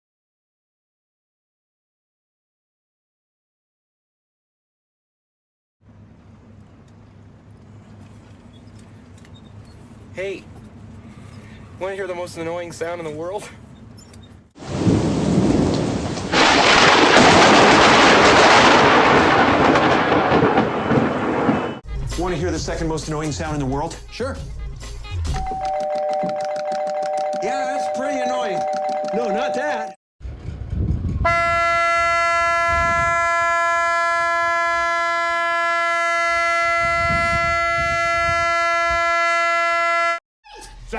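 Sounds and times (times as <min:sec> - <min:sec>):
buzzy horn-like tone: 0:31.2 - 0:40.2.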